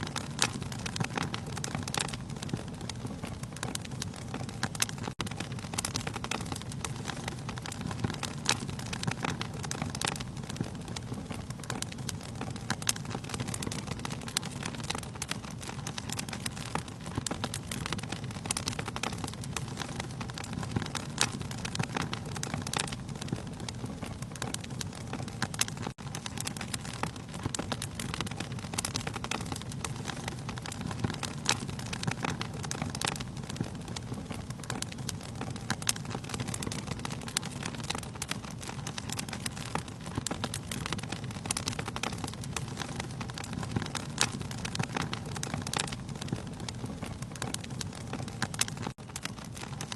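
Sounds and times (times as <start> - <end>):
burning logs crackling and popping: 0.0 - 49.9
rumble of flames: 0.0 - 49.9.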